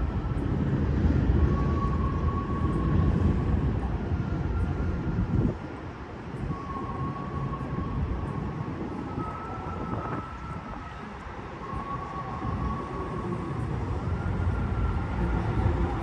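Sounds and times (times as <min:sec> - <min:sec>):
low city traffic rumble: 0:00.0 - 0:16.0.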